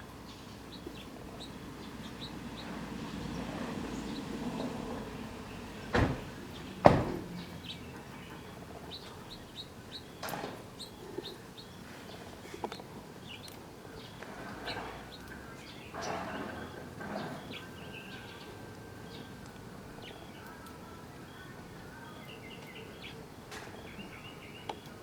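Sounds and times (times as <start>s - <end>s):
small birds chirping: 0.0s - 25.0s
sharp loud knock: 5.9s - 7.4s.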